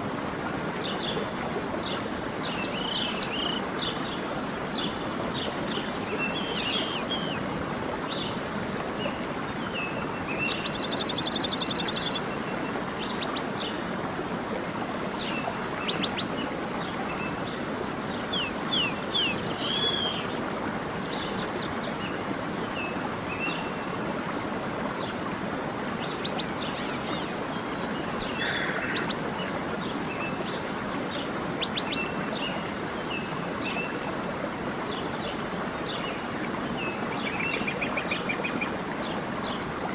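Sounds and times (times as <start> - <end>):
creek running: 0.0 - 39.9
songbirds chirping and trilling: 15.2 - 20.4.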